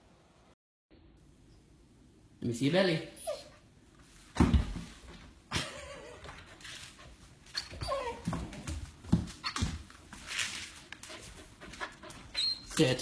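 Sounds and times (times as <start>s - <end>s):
dog whimpering and whining: 3.1s - 3.7s, 7.5s - 8.4s, 12.2s - 12.8s.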